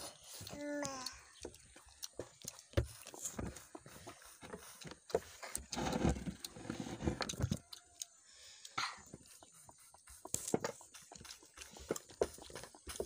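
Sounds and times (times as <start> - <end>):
chewing: 0.0 - 13.0.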